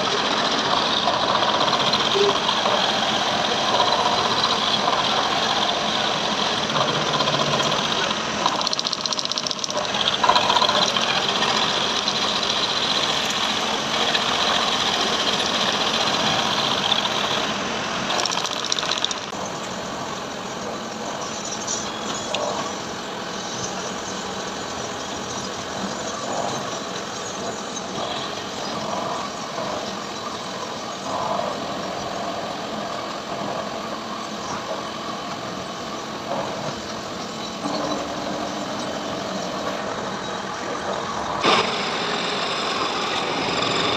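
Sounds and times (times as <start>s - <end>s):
heavy machine running: 0.0s - 43.9s
small mechanical knocks: 7.1s - 11.1s, 18.1s - 19.3s.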